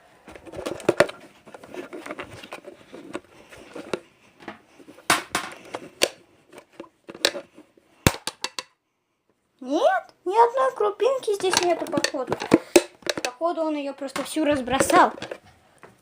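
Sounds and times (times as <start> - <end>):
plastic clicks and knocks: 8.1 - 8.7, 11.4 - 13.4.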